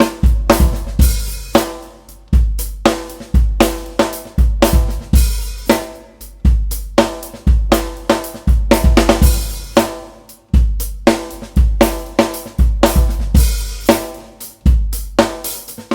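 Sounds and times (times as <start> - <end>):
kick drum booming: 0.0 - 1.7, 2.3 - 9.9, 10.6 - 13.9.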